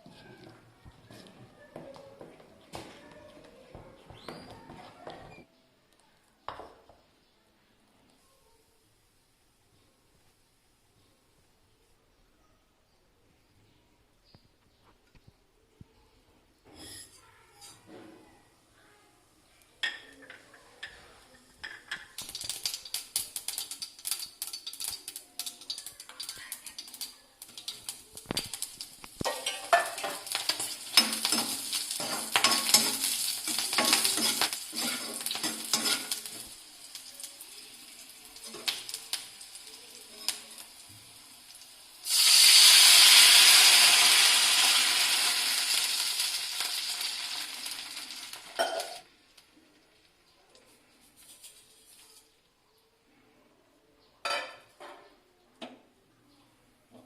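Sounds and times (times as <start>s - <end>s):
stirring clicks and sizzling: 19.6s - 52.4s
loud sizzling hiss: 30.1s - 48.6s.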